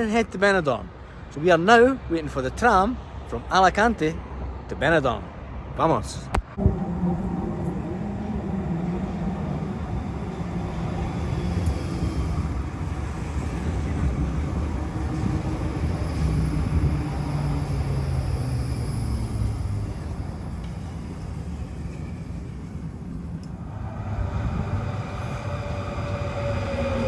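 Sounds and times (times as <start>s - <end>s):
tram wheels rumbling on rail: 6.4s - 27.0s.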